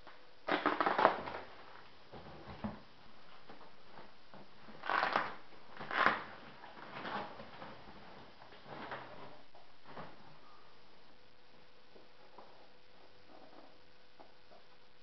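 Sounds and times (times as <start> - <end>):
packing material rustling: 0.5 - 1.6, 4.8 - 7.4.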